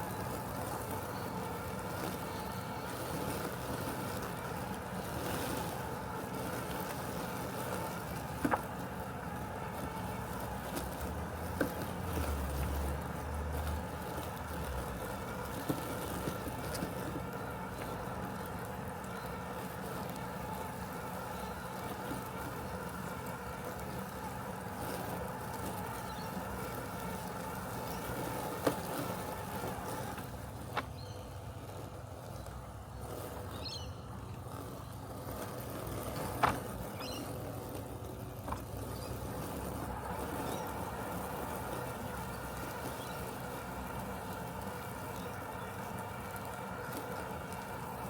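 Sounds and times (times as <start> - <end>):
robotic lawn mower humming: 0.0 - 48.0.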